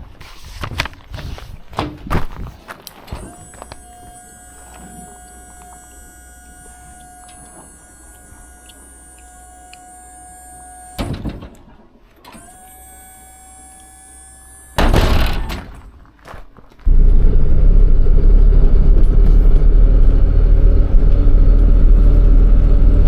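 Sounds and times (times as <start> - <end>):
small electric motor whining: 3.1 - 11.3, 12.3 - 15.5.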